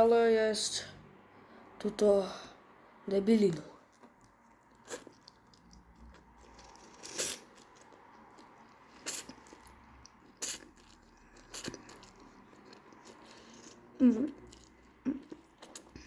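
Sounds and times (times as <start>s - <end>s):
person crunching a snack: 3.9s - 16.0s.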